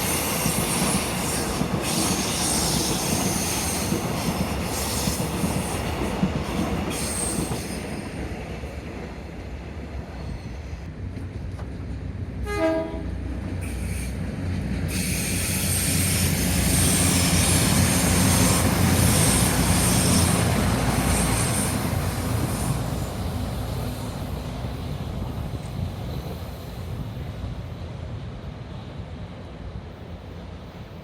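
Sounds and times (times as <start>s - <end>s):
diesel railcar passing: 0.0s - 31.0s
train horn blast: 12.4s - 13.2s.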